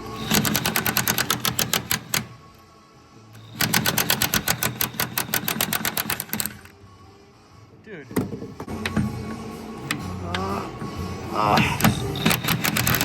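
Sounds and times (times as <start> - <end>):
impact wrench hammering: 0.2 - 2.3.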